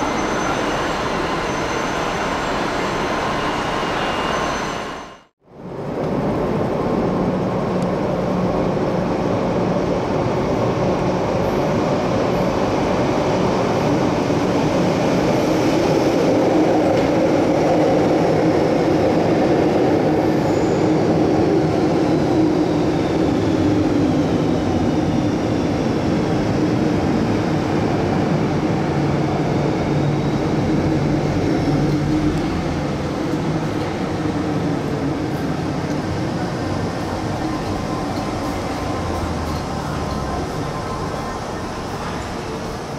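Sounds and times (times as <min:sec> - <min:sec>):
train wheels rumbling: 0:11.2 - 0:42.9.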